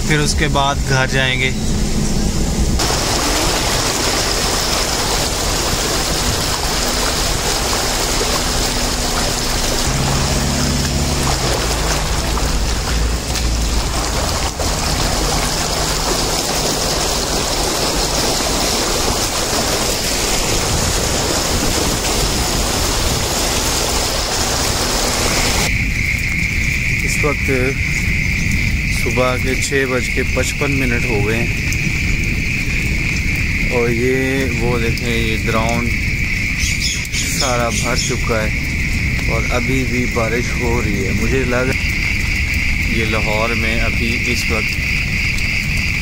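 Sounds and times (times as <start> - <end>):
low hum: 0.0 - 25.8
heavy rain: 0.0 - 46.0.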